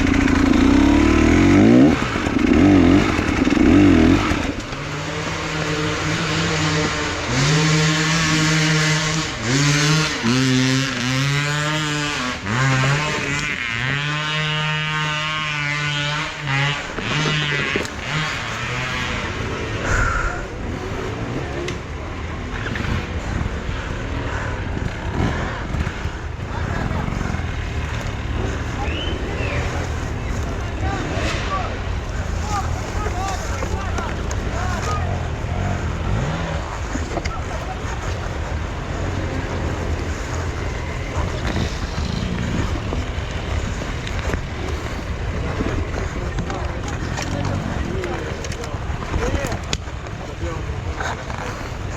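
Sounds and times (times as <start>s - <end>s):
motorcycle engine revving: 0.0s - 51.9s
wind noise rumble: 29.8s - 51.9s.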